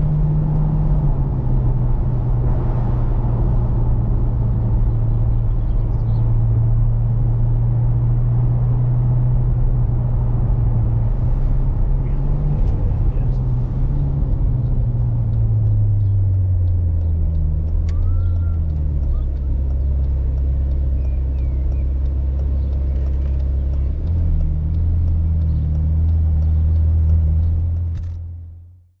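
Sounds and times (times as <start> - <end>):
car engine low drone: 0.0 - 29.0.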